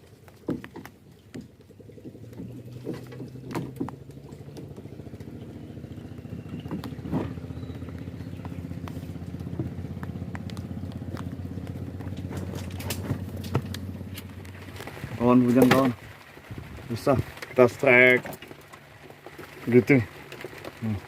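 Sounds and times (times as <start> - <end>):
small boat engine pulsing: 0.0 - 21.0
sharp ticks: 7.7 - 14.4.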